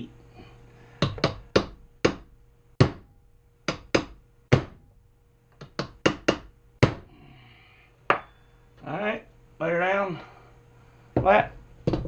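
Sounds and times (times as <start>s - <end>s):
hammer striking metal: 8.1s - 8.5s.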